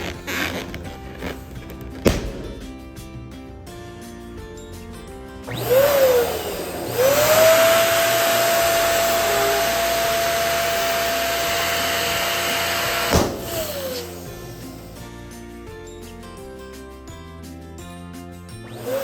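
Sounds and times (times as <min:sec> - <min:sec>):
electric pump motor whine: 0:05.5 - 0:14.7, 0:18.6 - 0:19.0.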